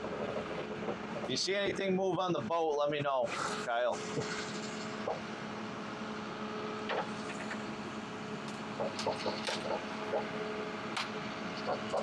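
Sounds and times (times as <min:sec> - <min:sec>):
forwarder engine running: 0:00.0 - 0:02.7.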